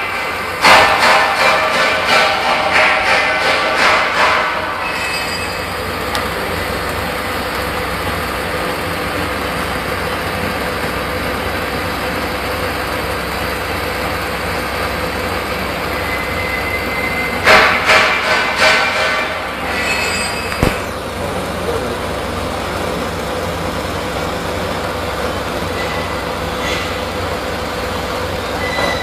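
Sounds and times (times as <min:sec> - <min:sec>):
machine clatter: 0:00.0 - 0:06.4, 0:17.4 - 0:21.6
welding machine noise: 0:00.0 - 0:29.0.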